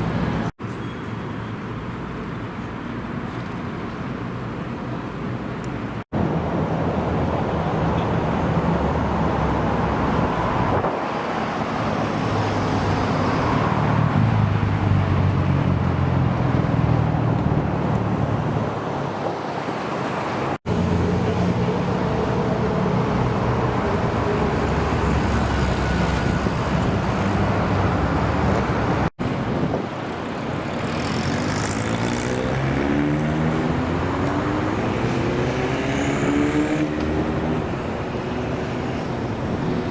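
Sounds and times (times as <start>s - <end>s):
engine revving: 30.7s - 39.0s.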